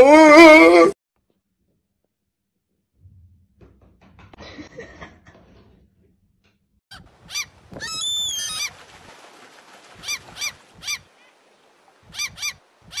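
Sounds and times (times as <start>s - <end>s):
bird calling: 6.9s - 8.9s, 9.9s - 13.0s.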